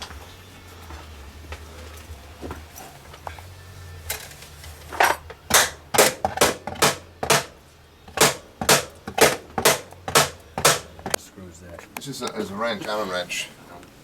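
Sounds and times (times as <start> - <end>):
sharp knocks: 5.5 - 11.2.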